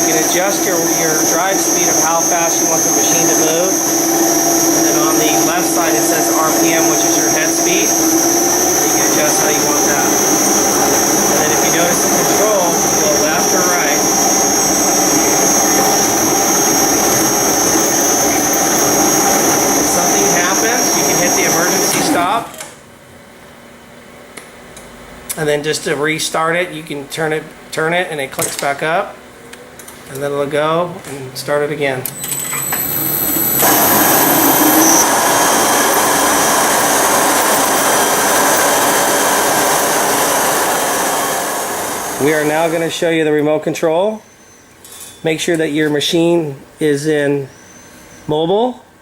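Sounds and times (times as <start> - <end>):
concrete grinder with vacuum whine: 0.0 - 22.5, 32.2 - 42.9.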